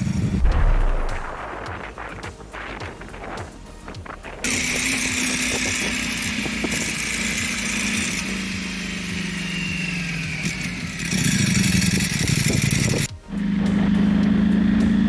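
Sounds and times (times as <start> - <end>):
motorbike engine running: 0.0 - 15.0.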